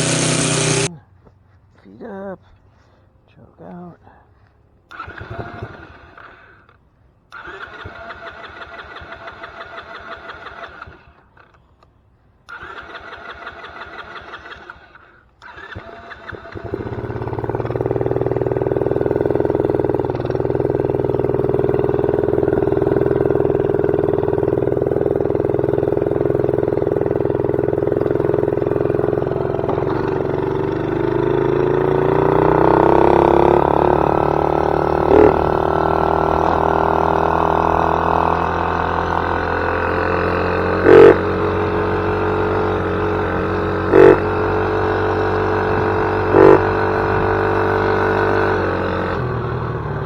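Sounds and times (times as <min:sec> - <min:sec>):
atv engine cranking: 0:00.0 - 0:00.9, 0:04.9 - 0:50.0
atv engine running: 0:00.0 - 0:01.0, 0:04.9 - 0:11.8, 0:12.4 - 0:50.0.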